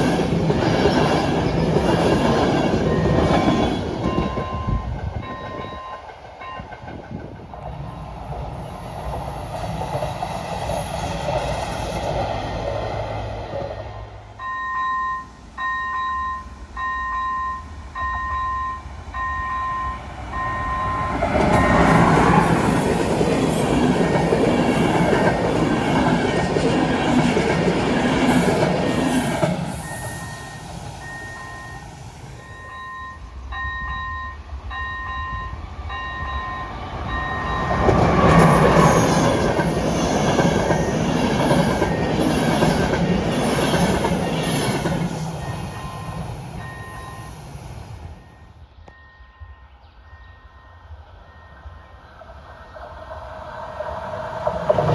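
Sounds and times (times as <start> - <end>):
train wheel squeal: 0.0 - 12.6, 13.5 - 52.9
train passing rumble: 0.0 - 54.9
level crossing warning bell: 0.9 - 6.9, 14.4 - 23.5, 29.8 - 39.9, 45.4 - 47.5, 48.2 - 52.1.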